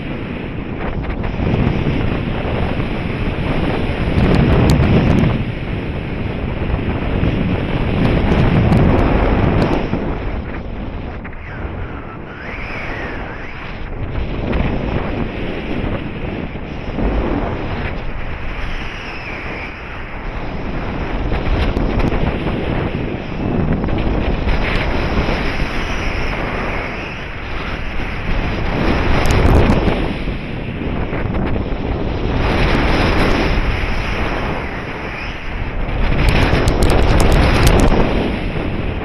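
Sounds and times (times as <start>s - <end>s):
wind rushing over microphone: 0.0s - 39.0s
faint wavering whistle: 11.4s - 13.8s.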